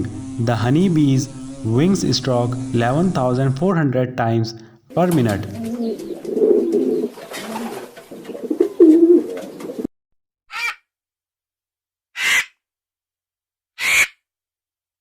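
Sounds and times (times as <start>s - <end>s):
pigeon cooing: 0.0s - 3.6s, 4.9s - 9.9s
crow cawing: 5.1s - 6.5s, 10.5s - 10.8s, 12.2s - 12.6s, 13.8s - 14.2s.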